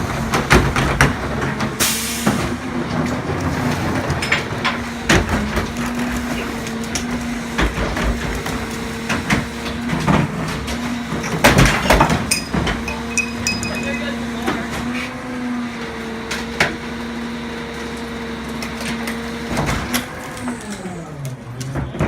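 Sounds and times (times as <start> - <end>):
garbage truck humming: 0.0 - 22.0
sharp metal clanks and knocks: 11.7 - 14.1.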